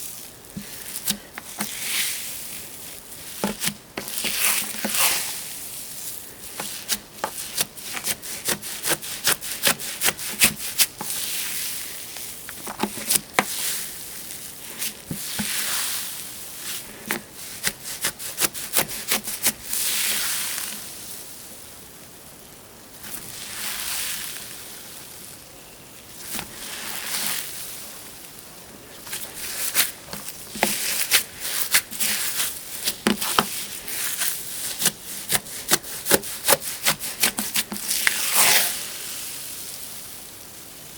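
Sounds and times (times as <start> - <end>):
crackling hiss of slime: 0.0 - 40.9.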